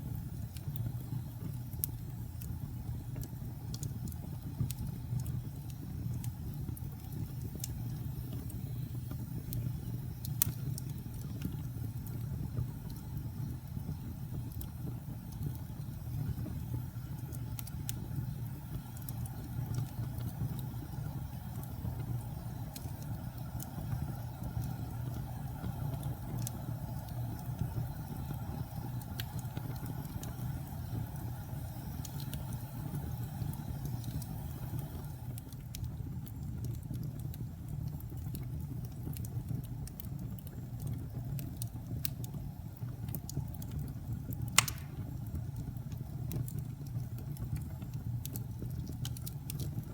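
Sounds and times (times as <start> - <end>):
wood fire roaring and crackling: 0.0 - 49.9.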